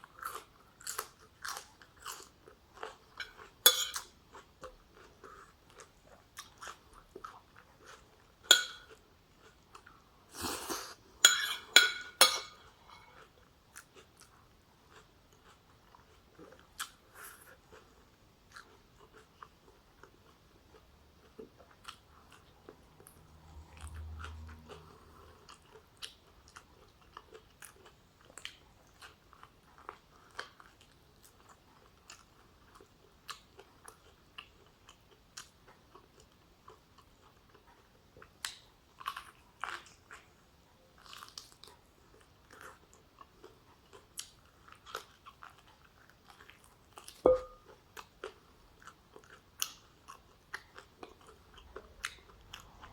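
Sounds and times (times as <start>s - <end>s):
chewing and biting food: 0.0s - 10.9s, 12.6s - 52.9s
sharp ringing knock: 47.3s - 47.6s.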